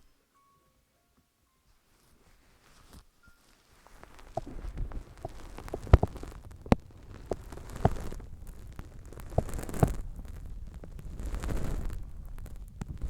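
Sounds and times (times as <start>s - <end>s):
hands rubbing microphone: 2.1s - 13.0s
sharp taps on microphone: 4.3s - 6.9s.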